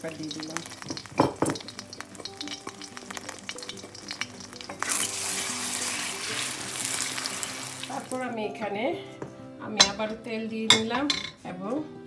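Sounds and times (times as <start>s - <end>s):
hot oil sizzling in pan: 0.0s - 8.3s.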